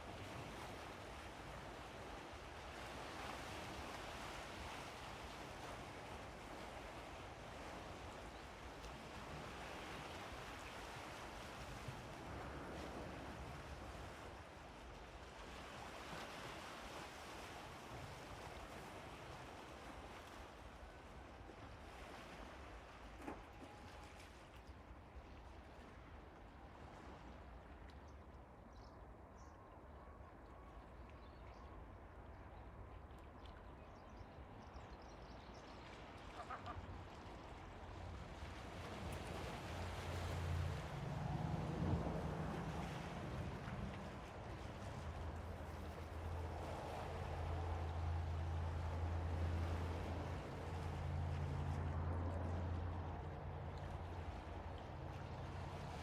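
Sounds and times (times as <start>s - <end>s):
sea waves washing on shore: 0.0s - 24.5s, 36.0s - 56.0s
wind: 0.0s - 56.0s
faint bird calls: 36.2s - 36.9s.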